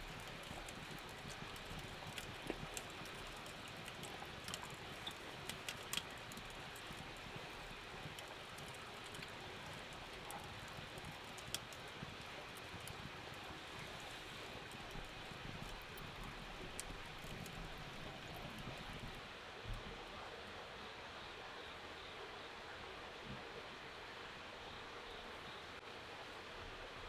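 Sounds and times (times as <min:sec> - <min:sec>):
steady rain: 0:00.0 - 0:27.0.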